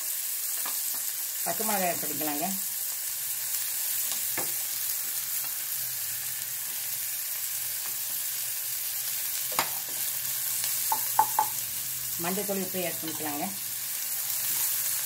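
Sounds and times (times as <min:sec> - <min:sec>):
onions sizzling in hot oil: 0:00.0 - 0:15.0
spatula knocking against pan: 0:10.9 - 0:11.6.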